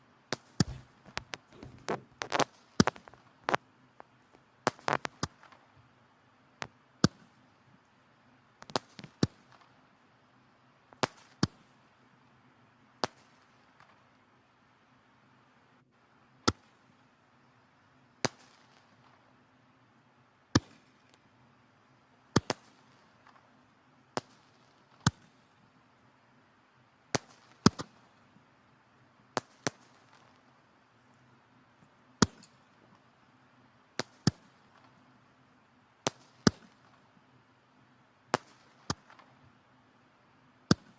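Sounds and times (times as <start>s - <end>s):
faint low hiss: 0.0s - 40.9s
firewood crackling and popping: 0.3s - 5.8s, 8.6s - 9.7s, 29.3s - 30.6s.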